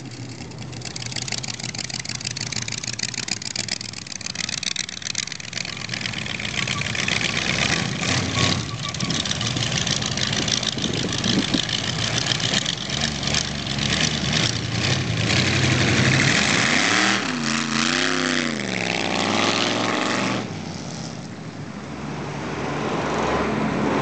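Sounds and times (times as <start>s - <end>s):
car engine running: 0.0s - 17.7s.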